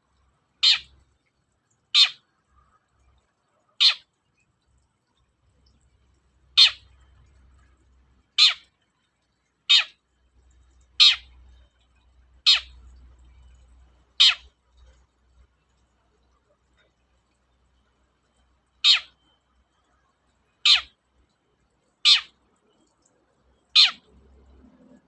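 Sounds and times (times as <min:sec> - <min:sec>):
bird giving harsh calls: 0:00.6 - 0:00.9, 0:02.0 - 0:02.2, 0:03.8 - 0:04.0, 0:06.6 - 0:06.8, 0:08.4 - 0:08.6, 0:09.7 - 0:10.0, 0:11.0 - 0:11.3, 0:12.5 - 0:12.7, 0:14.2 - 0:14.5, 0:18.8 - 0:19.1, 0:20.7 - 0:20.9, 0:22.1 - 0:22.3, 0:23.8 - 0:24.0.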